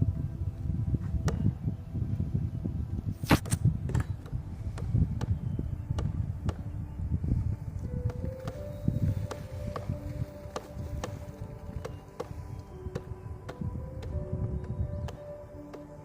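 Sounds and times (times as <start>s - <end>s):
woodpecker tapping wood: 1.0s - 1.5s, 3.3s - 6.8s, 7.8s - 16.0s.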